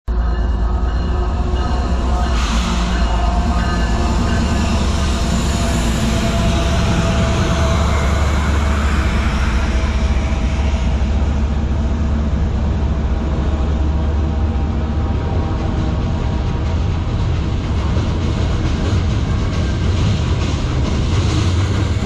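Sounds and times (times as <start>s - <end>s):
diesel locomotive passing: 0.1s - 22.0s
train wheels rumbling on rail: 0.1s - 22.0s.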